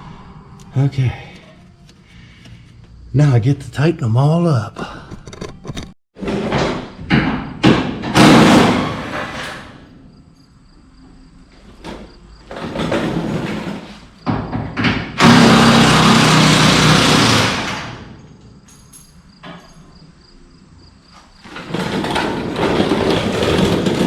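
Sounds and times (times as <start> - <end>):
impact wrench hammering: 14.6 - 18.1.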